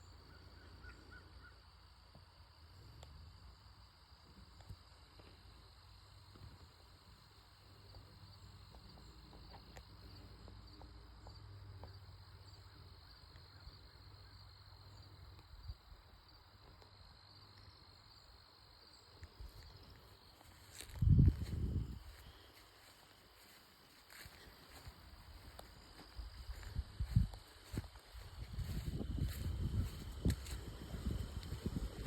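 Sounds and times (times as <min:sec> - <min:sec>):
insects droning: 0:00.0 - 0:32.0
small ticks and rustles: 0:07.6 - 0:13.7, 0:19.0 - 0:32.0.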